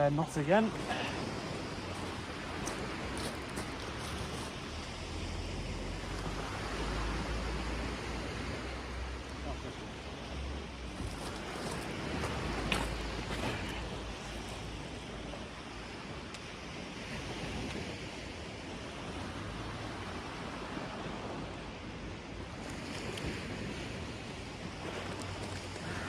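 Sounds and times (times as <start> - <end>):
sea surf breaking: 0.0 - 16.2.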